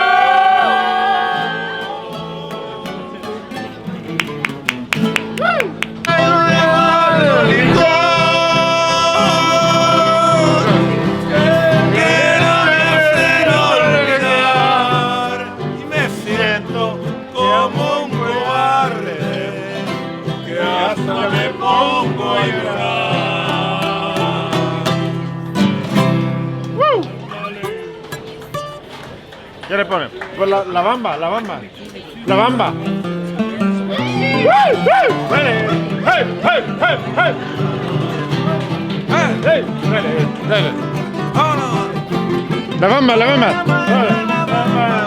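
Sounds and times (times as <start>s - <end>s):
person singing: 0.0s - 3.6s, 5.4s - 25.4s, 34.0s - 45.0s
band playing: 0.0s - 28.9s, 33.9s - 45.0s
guitars strummed: 0.0s - 29.3s, 32.3s - 45.0s.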